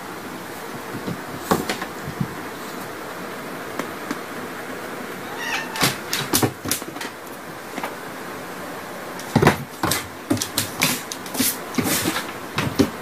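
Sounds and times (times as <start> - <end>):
cat yowling: 5.2 - 6.1.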